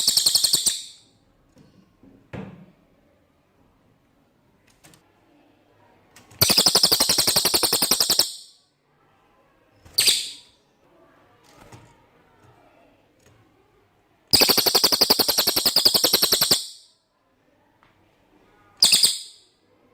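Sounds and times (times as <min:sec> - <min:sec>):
songbird high fast trill: 0:00.0 - 0:01.0, 0:06.4 - 0:08.6, 0:14.3 - 0:16.9.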